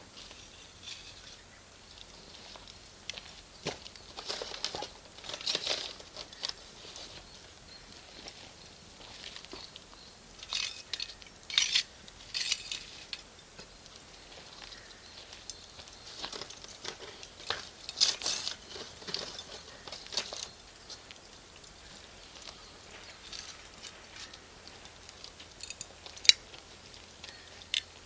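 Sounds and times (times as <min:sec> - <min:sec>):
burning charcoal popping: 0:00.0 - 0:28.0
fire crackling: 0:00.0 - 0:28.0.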